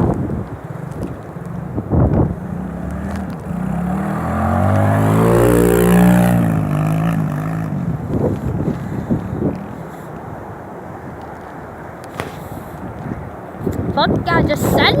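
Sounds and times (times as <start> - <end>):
dirt bike engine passing by: 0.0 - 9.9
wind buffeting microphone: 0.0 - 15.0.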